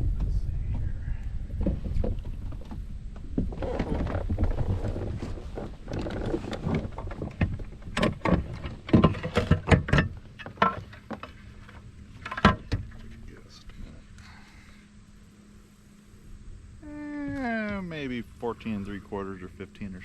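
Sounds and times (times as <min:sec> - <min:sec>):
wind on microphone: 0:00.0 - 0:08.6
sharp knocks and thumps: 0:01.6 - 0:11.4.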